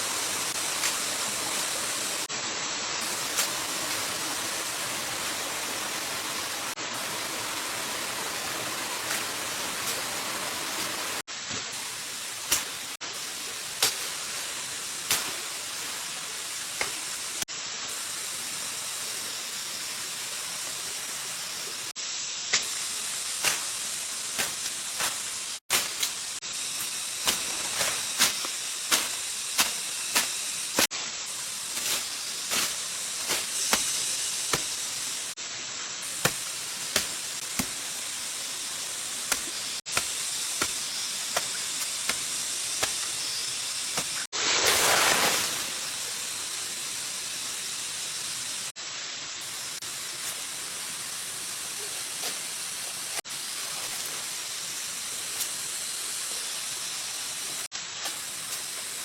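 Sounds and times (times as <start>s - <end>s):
stream water rushing: 0.0s - 17.4s, 43.8s - 46.2s
sharp chopping knocks: 36.2s - 37.8s.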